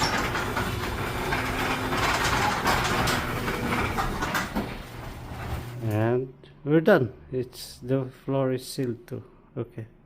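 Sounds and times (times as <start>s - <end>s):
garage door opener motor: 0.0s - 6.2s.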